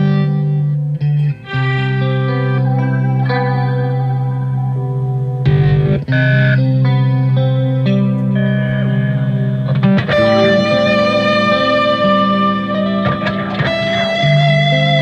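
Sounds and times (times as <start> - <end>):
electric guitar ringing notes: 0.0 - 15.0
looped backing track: 1.1 - 7.3.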